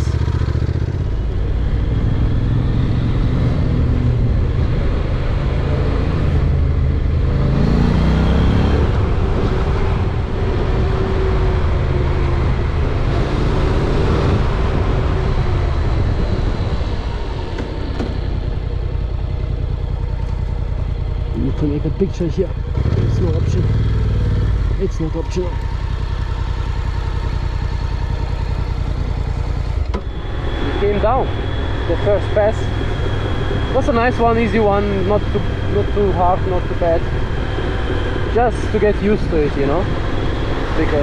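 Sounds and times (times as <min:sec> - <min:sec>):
rush of wind noise: 0:00.0 - 0:19.2
motorcycle engine revving: 0:00.0 - 0:41.0.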